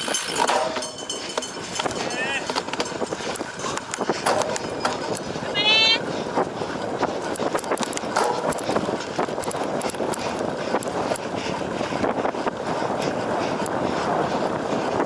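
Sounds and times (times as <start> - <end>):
bike chain and frame clattering: 0.0 - 11.9
wind and tyre noise: 0.0 - 15.0.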